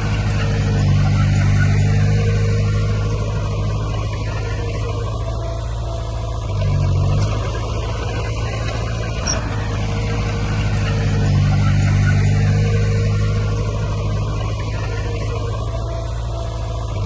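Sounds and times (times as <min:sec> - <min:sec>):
heavy diesel engine under load: 0:00.0 - 0:17.0.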